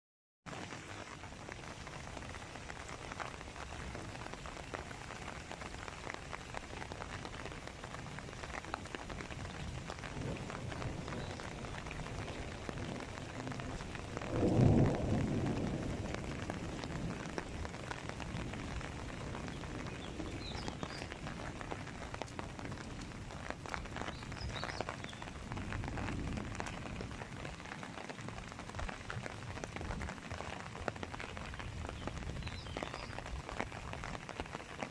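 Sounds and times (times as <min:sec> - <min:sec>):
steady rain falling: 0:00.5 - 0:34.9
low rumble of thunder: 0:07.7 - 0:33.6.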